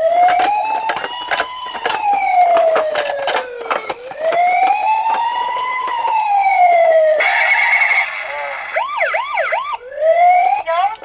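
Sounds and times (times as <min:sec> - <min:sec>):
wailing siren: 0:00.0 - 0:11.0
sharp clicks and knocks: 0:00.1 - 0:06.5.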